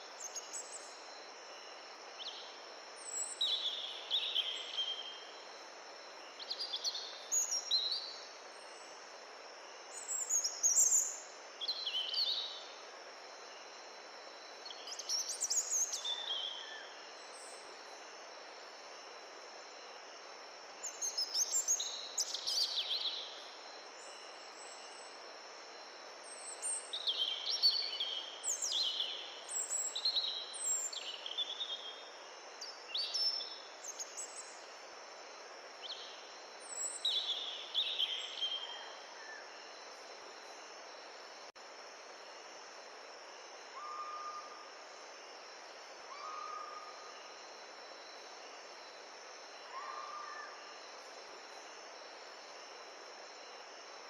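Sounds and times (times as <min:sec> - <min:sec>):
songbirds singing: 0:00.0 - 0:09.2, 0:09.8 - 0:12.8, 0:14.5 - 0:18.2, 0:20.8 - 0:25.2, 0:26.2 - 0:34.6, 0:35.7 - 0:40.7
high insect trill: 0:00.0 - 0:54.0.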